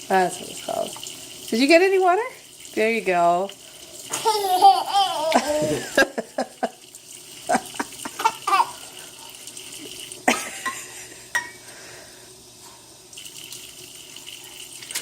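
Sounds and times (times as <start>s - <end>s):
water splashing in a sink: 0.0s - 11.0s, 13.0s - 15.0s.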